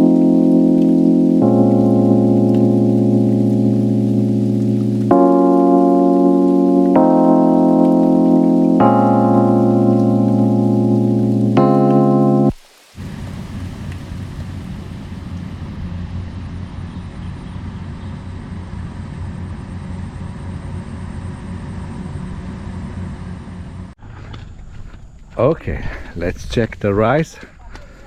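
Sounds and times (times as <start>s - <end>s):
harvester engine rumble: 13.0s - 25.6s.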